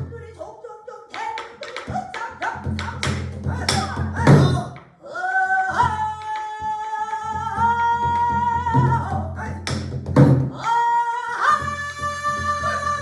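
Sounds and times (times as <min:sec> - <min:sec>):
person singing long wavering notes: 0:10.6 - 0:13.0.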